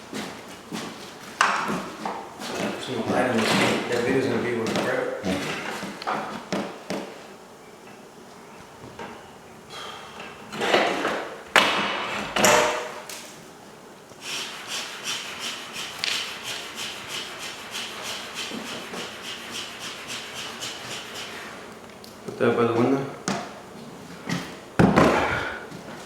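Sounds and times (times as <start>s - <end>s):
hand tool rasping into wall: 14.2s - 21.6s.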